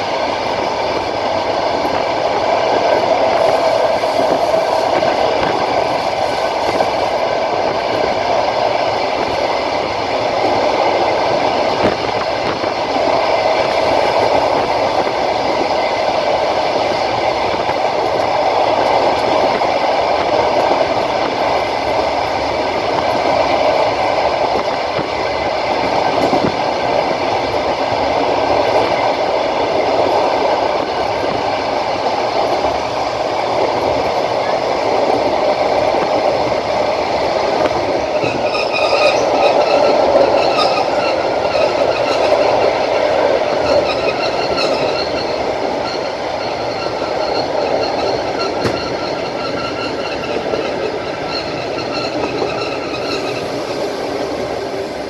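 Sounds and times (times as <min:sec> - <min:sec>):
train wheels on rails: 0:00.0 - 0:55.0
steady whine: 0:33.4 - 0:55.0.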